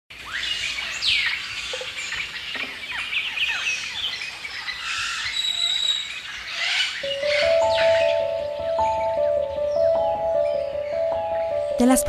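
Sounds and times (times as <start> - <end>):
birds chirping and calling: 0.2 - 12.0.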